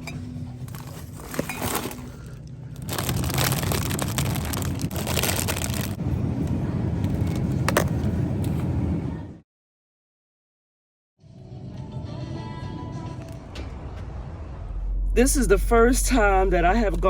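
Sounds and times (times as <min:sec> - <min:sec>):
car road and engine rumble: 0:00.0 - 0:09.4, 0:12.8 - 0:17.0.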